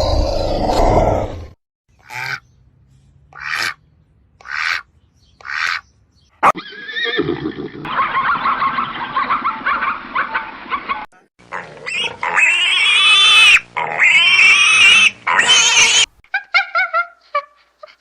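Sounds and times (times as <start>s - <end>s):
animal squealing: 11.5s - 16.1s
animal yelping: 11.5s - 18.0s.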